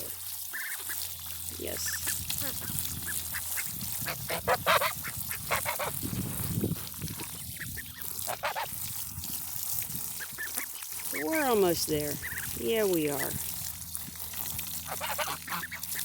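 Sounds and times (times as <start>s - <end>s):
geese honking: 1.9s - 6.0s, 7.6s - 8.7s, 10.2s - 13.4s, 14.8s - 16.0s.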